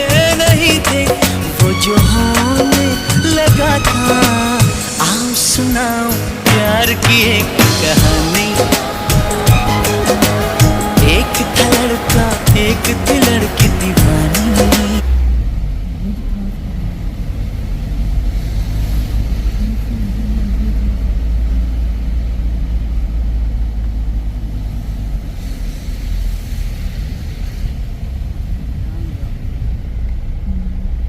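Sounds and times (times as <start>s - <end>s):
song playing: 0.0s - 15.1s
moving vehicle rumble: 0.0s - 31.0s.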